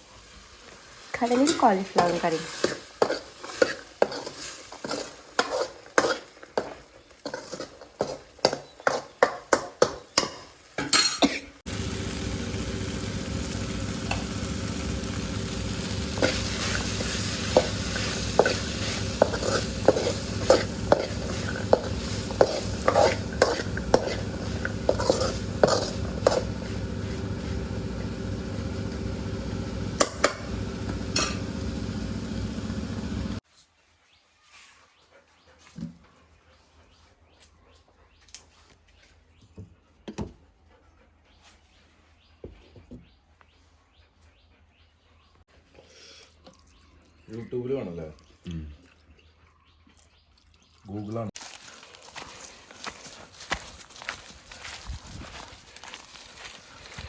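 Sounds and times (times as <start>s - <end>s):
food sizzling in hot oil: 0.0s - 33.4s.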